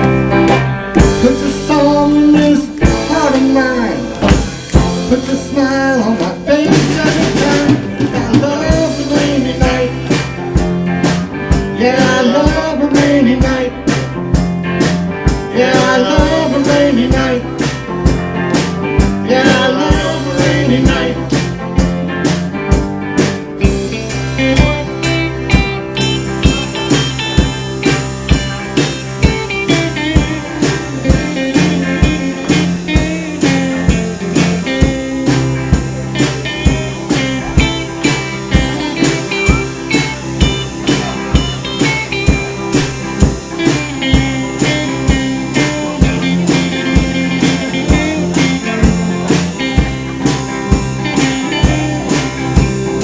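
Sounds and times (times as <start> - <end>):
lead guitar bending lines: 0.0 - 53.0
live rock band playing: 0.0 - 53.0.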